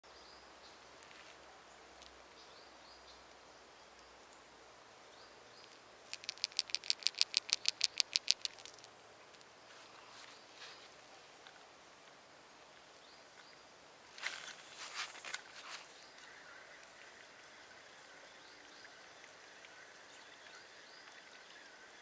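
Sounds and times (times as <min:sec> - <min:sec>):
frog calling in sharp clicks: 0:05.6 - 0:08.9.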